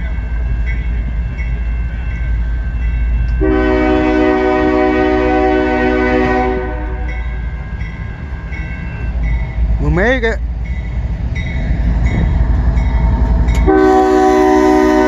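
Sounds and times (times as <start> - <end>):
crossing bell dinging: 0.0 - 15.0
train rumble: 0.0 - 15.0
locomotive air horn: 3.4 - 7.1, 13.7 - 15.0.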